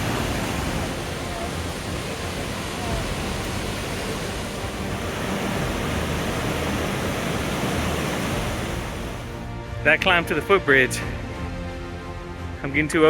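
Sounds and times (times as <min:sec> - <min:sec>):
river rushing over rapids: 0:00.0 - 0:10.2.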